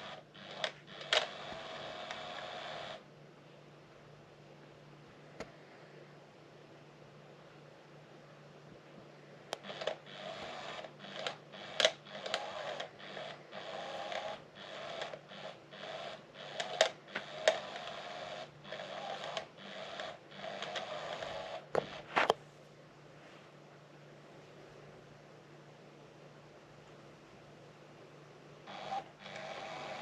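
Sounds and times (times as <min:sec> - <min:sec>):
small electric motor whirring: 0:00.0 - 0:03.0, 0:09.6 - 0:22.3, 0:28.7 - 0:30.0.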